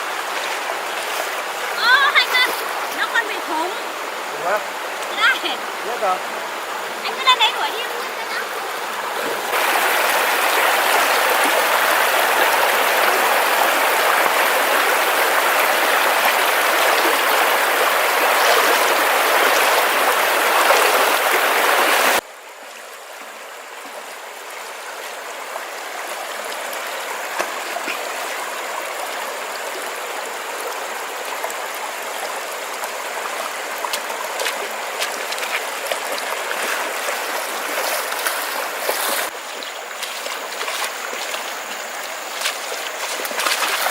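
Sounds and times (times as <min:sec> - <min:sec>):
water rushing: 0:00.0 - 0:43.9.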